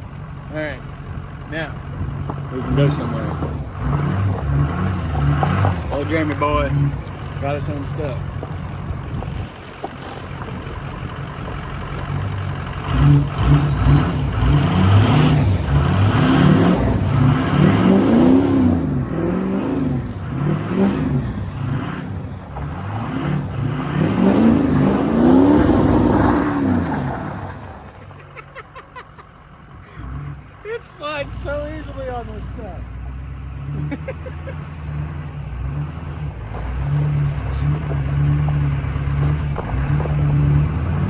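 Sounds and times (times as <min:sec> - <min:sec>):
diesel truck engine revving: 0:00.0 - 0:41.0.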